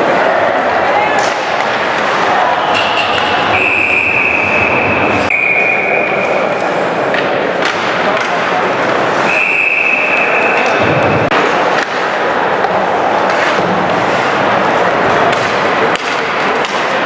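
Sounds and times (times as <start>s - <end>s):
ice rink background noise: 0.0s - 17.0s
hockey sticks and puck knocks: 1.1s - 5.3s, 7.0s - 9.4s, 10.3s - 17.0s
referee's whistle: 2.6s - 6.4s, 9.2s - 10.8s.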